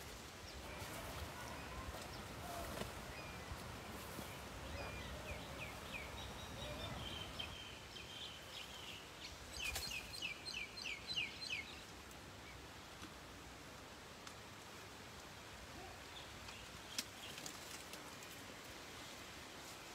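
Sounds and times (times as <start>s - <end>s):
faint outdoor hiss: 0.0s - 19.9s.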